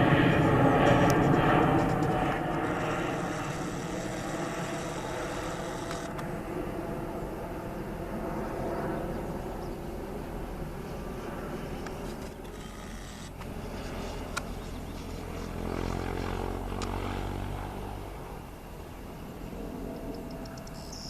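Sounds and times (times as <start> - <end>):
jet engines: 0.0 - 21.0.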